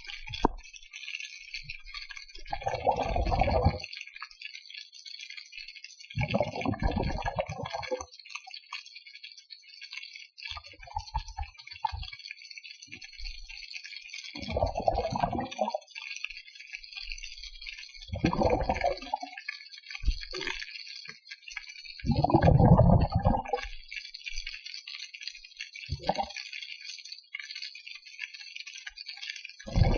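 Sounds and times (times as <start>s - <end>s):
fine underwater crackle: 0.0s - 29.9s
swishing surges of water: 2.4s - 3.8s, 14.4s - 15.8s, 18.1s - 19.4s, 22.0s - 23.7s, 25.9s - 26.4s, 29.6s - 29.9s.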